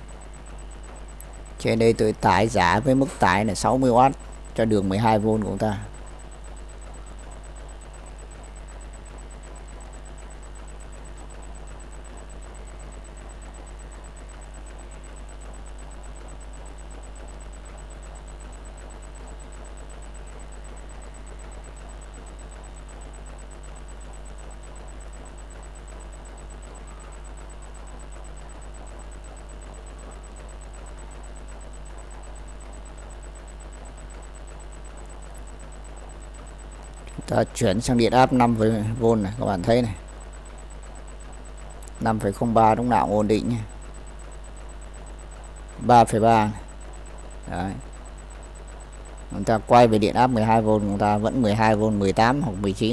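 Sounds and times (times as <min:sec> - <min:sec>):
electrical mains hum: 0:00.0 - 0:52.9
faint high-pitched pulsing tone: 0:00.0 - 0:52.9.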